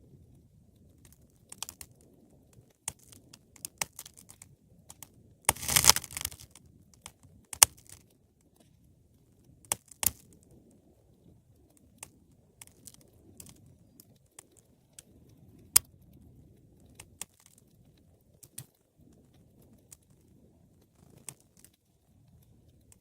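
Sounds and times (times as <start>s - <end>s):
wood fire crackling and popping: 0.4s - 8.7s, 9.6s - 10.4s, 11.2s - 23.0s
low rumble of flames: 10.3s - 23.0s.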